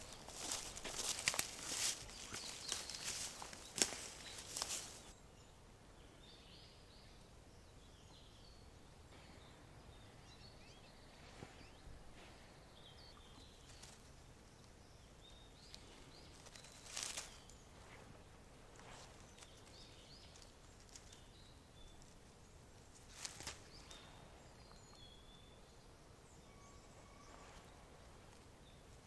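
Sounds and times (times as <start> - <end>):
leafy stems rustling: 0.0 - 5.1, 15.6 - 24.1
bird chirps: 23.1 - 28.0.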